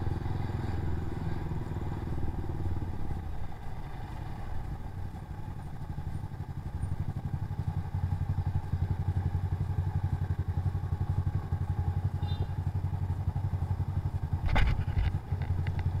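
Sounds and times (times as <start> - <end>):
motorcycle engine chugging: 0.0 - 16.0
short sharp clatter: 14.4 - 15.8.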